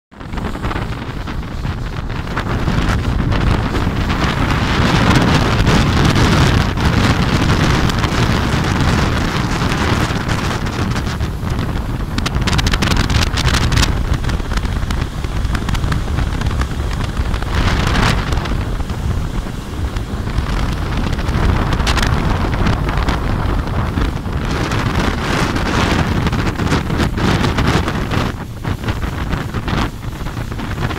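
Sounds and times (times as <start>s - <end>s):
motorboat engine drone: 0.1s - 30.9s
wind buffeting microphone: 0.1s - 30.9s
water rushing past hull: 0.2s - 30.9s
water splashes: 0.2s - 30.9s.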